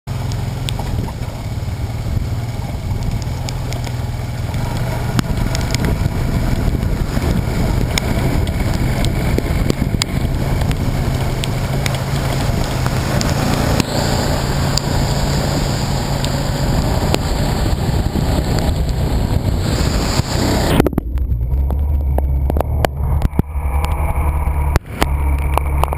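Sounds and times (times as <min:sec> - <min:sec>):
vehicle engine running: 0:00.1 - 0:25.9
wind buffeting microphone: 0:00.7 - 0:25.9
sharp ticks: 0:02.9 - 0:06.1, 0:07.8 - 0:14.0.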